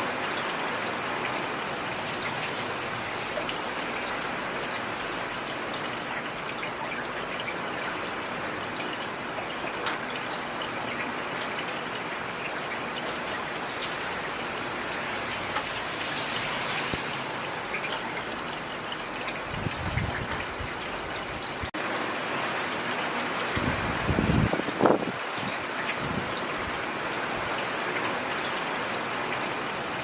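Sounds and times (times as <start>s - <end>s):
steady rain falling: 0.0s - 30.0s
raindrops clicking close by: 2.1s - 16.2s, 16.8s - 21.8s.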